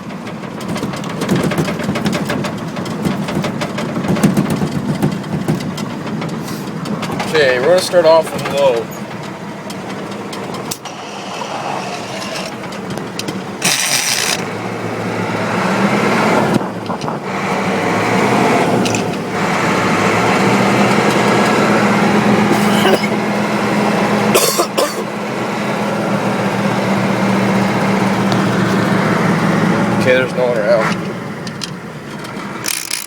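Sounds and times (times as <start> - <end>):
diesel truck engine pulling away: 5.2 - 32.7.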